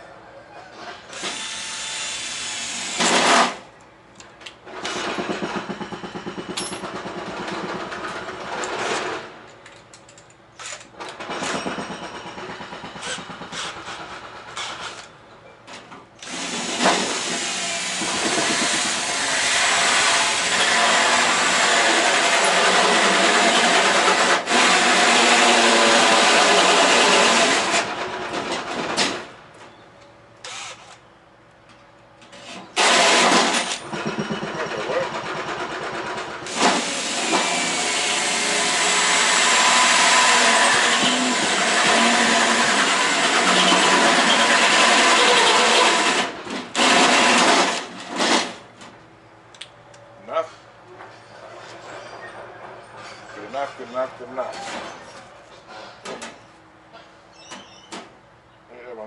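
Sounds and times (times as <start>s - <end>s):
electric drill boring into metal: 30.5s - 30.9s, 36.5s - 47.8s.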